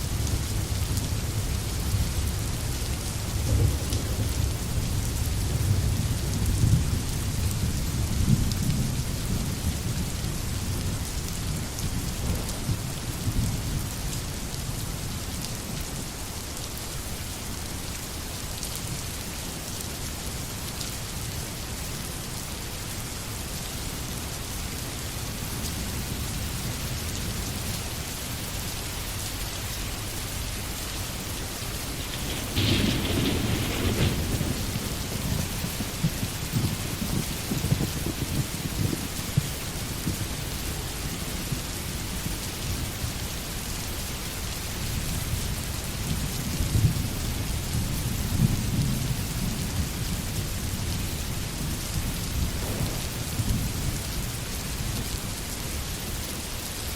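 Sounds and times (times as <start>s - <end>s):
thunder rumble: 0.0s - 14.2s, 30.1s - 42.9s, 45.0s - 55.9s
steady rain in forest: 0.0s - 56.9s.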